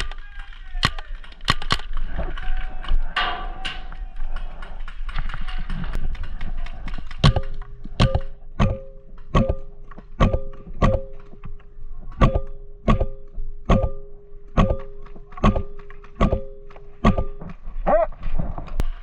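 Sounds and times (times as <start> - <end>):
paintball marker firing: 12.1 - 17.6.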